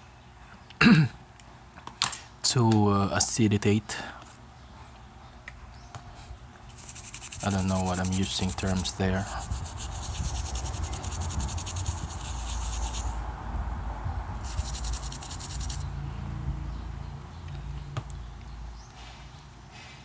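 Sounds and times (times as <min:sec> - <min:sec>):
brush scrubbing circuit board: 0:06.7 - 0:13.2, 0:14.4 - 0:15.8.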